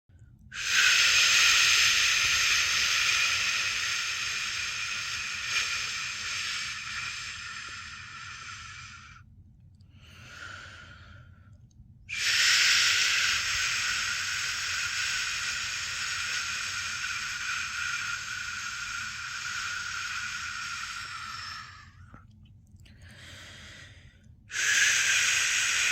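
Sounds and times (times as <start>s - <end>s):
soft breath: 0.1s - 25.9s
person shushing: 12.1s - 22.0s.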